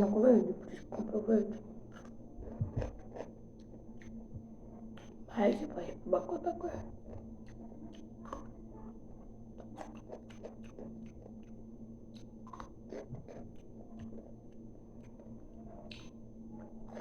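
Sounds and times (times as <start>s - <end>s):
crunchy chewing: 9.6s - 14.3s.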